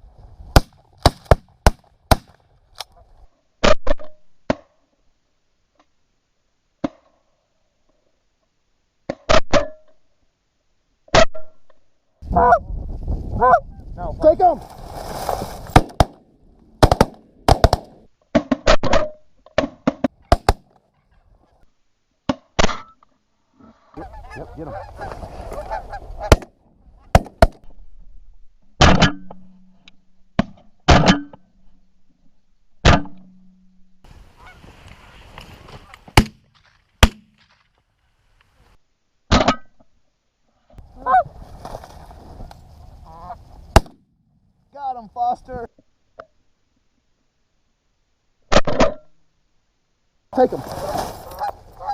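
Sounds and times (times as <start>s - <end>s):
shotgun shots: 0.6s - 2.4s, 15.7s - 16.2s, 16.8s - 18.1s, 20.3s - 20.7s, 26.3s - 26.5s, 37.0s - 37.4s
geese honking: 24.0s - 26.4s, 34.1s - 36.1s, 41.0s - 41.3s, 43.0s - 43.4s, 50.8s - 51.9s.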